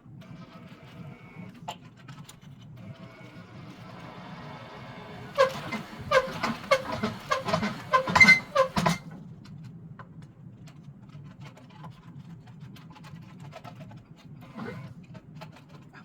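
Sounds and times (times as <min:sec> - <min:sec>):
wire spool squeaking: 0:04.0 - 0:09.1.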